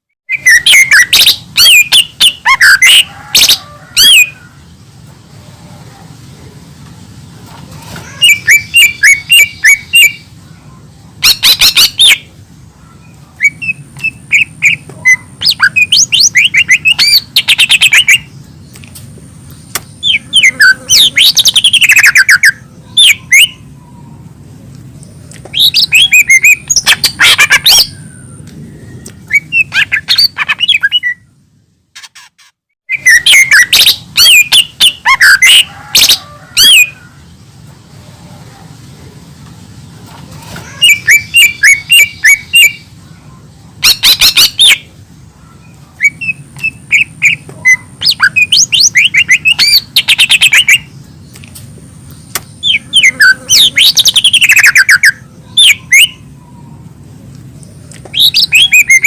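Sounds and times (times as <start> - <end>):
small bird singing chirps and whistles: 0.3 - 3.1, 8.1 - 10.3, 13.0 - 18.4, 19.8 - 23.6, 25.5 - 31.3, 32.9 - 35.7, 45.6 - 50.9, 52.3 - 56.2, 58.1 - 59.0.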